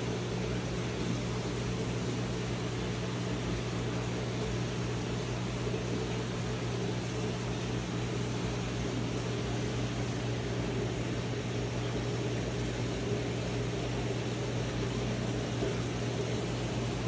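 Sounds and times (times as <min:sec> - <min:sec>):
machinery hum with hiss: 0:00.0 - 0:17.0.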